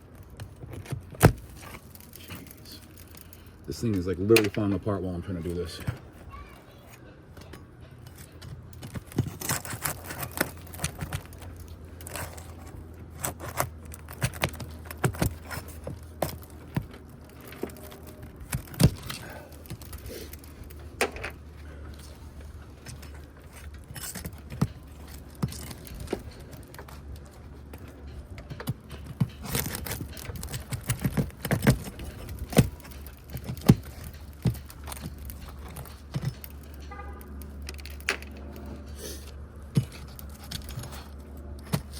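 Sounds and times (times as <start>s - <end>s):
hand tools prying nails from shingles: 8.0s - 41.9s.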